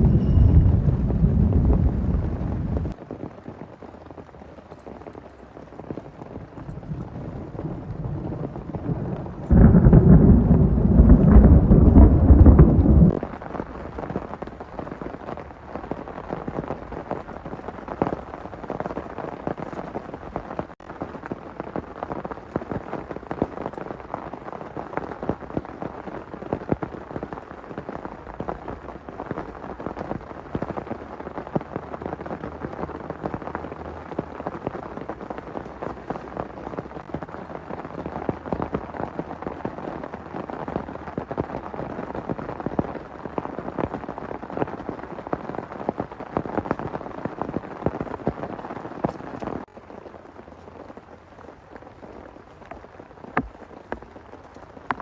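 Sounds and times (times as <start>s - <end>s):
deep rumble of thunder: 0.0s - 3.0s, 6.5s - 13.5s
heavy rain: 0.0s - 55.0s
raindrops ticking on a surface: 0.0s - 55.0s.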